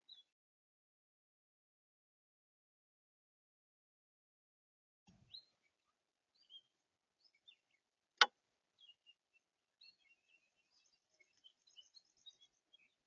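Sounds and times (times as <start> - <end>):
songbirds chirping: 0.0 - 0.4, 5.1 - 13.0.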